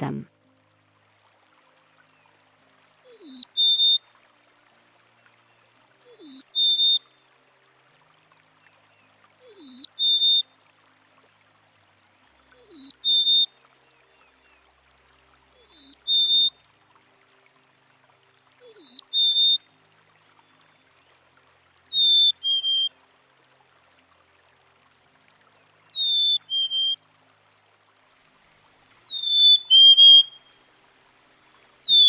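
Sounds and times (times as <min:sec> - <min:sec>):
chickadee two-note whistled song: 0:03.0 - 0:04.0, 0:06.0 - 0:07.1, 0:09.4 - 0:10.4, 0:12.5 - 0:13.5, 0:15.5 - 0:16.5, 0:18.6 - 0:19.6, 0:21.9 - 0:22.9, 0:26.0 - 0:27.0, 0:29.1 - 0:30.6.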